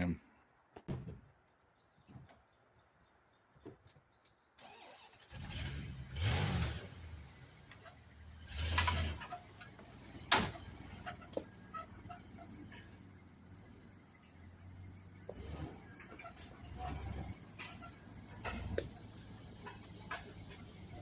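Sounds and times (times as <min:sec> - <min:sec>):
truck engine idling: 0:04.6 - 0:21.0
truck engine starting and revving: 0:04.6 - 0:21.0.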